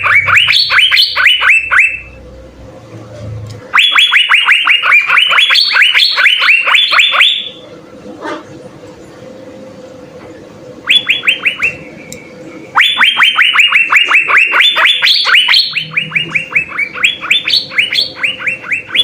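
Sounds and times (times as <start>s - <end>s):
bird singing sliding notes: 10.9s - 19.0s.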